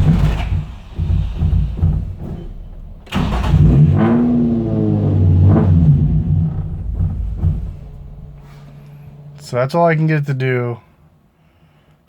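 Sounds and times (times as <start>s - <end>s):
car engine cranking on starter: 0.0s - 9.6s.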